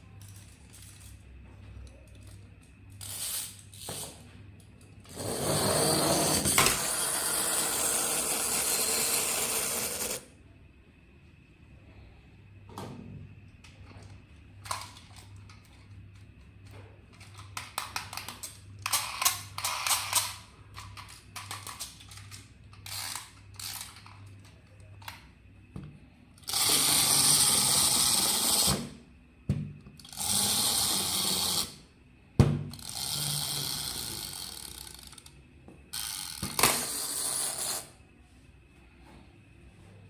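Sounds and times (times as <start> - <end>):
toy motor and gears whirring: 2.2 - 4.2, 5.0 - 10.3, 17.2 - 24.3, 26.4 - 29.0, 30.0 - 31.9, 32.7 - 38.0
plastic toy clicking and rattling: 17.1 - 25.2.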